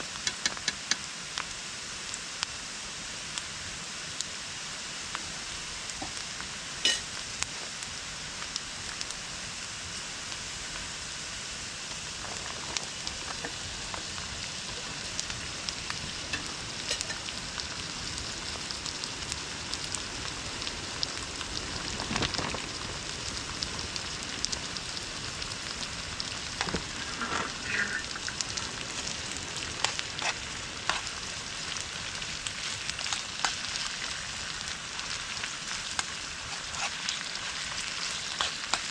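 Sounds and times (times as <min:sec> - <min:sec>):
food sizzling in a frying pan: 0:00.0 - 0:38.9.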